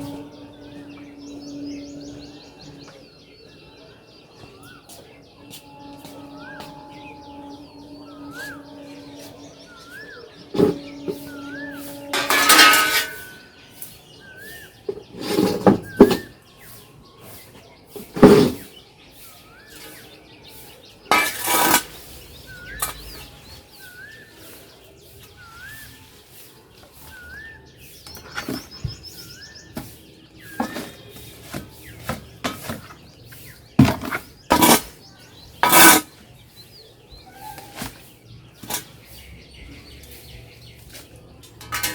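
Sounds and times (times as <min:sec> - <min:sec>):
bird chirping: 0:00.0 - 0:41.9
pots knocking and scraping: 0:10.5 - 0:13.5, 0:14.9 - 0:16.3, 0:18.0 - 0:18.7, 0:21.1 - 0:22.0, 0:29.7 - 0:33.0, 0:33.8 - 0:35.0, 0:35.6 - 0:36.2, 0:41.4 - 0:41.9.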